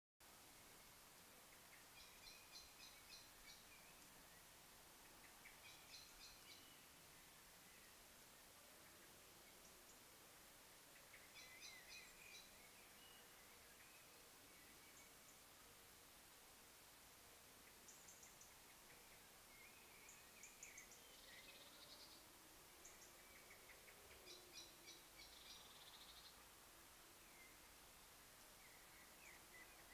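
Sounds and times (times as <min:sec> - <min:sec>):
faint bird song: 0:00.2 - 0:29.9
steady hiss: 0:00.2 - 0:29.9
birds chirping and trilling: 0:22.8 - 0:26.4.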